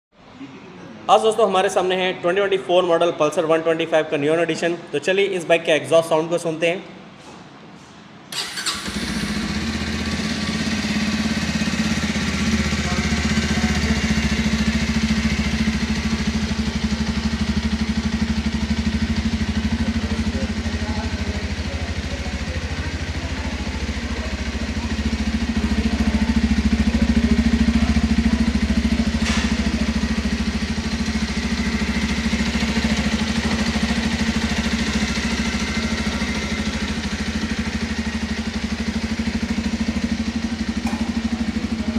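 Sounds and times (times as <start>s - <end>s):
motorcycle engine idling: 8.4s - 41.9s.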